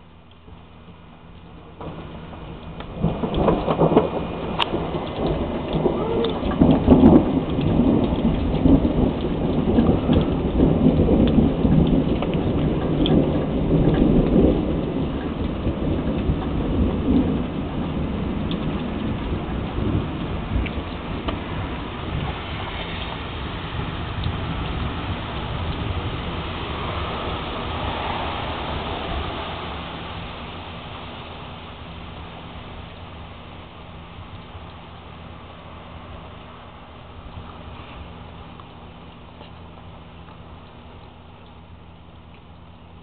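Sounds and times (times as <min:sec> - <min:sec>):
steady rain: 0:00.0 - 0:43.0
rolling thunder: 0:01.8 - 0:34.5.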